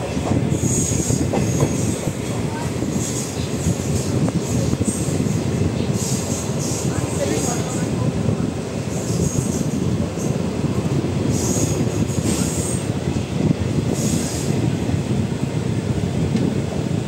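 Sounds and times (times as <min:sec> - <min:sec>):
wheels rumbling on rails: 0:00.0 - 0:17.0.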